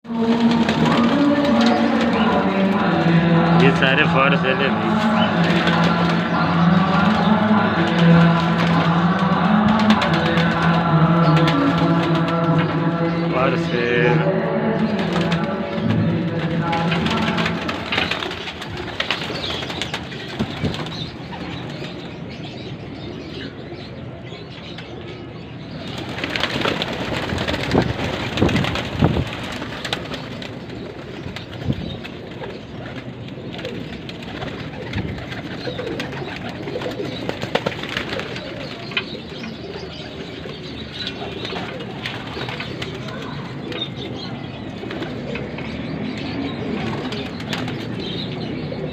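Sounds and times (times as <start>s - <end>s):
wing flapping and scuffling: 0.1s - 12.8s, 14.7s - 22.3s, 25.7s - 48.2s
pigeons cooing: 0.1s - 48.9s.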